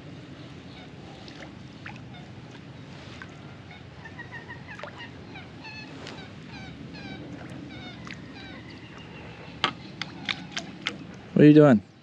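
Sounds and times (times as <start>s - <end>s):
birds chirping: 0.2s - 12.0s.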